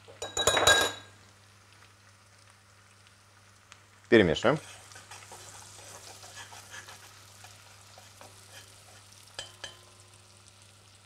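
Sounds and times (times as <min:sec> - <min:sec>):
onion sizzling in butter: 0:00.0 - 0:11.0
spoon clinking against pot: 0:00.2 - 0:01.1, 0:09.3 - 0:09.9
metal spoon stirring in a pot: 0:04.6 - 0:10.0.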